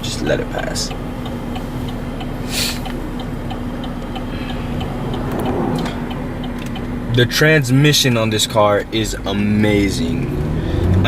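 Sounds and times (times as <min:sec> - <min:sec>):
car engine idling: 0:00.0 - 0:11.0
turn signal ticking: 0:00.0 - 0:11.0
car passing by: 0:04.2 - 0:07.1.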